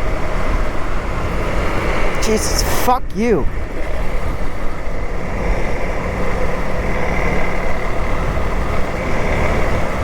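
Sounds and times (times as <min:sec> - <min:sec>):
road noise: 0:00.0 - 0:10.0
wind noise: 0:00.0 - 0:10.0
motorcycle engine drone: 0:03.4 - 0:10.0.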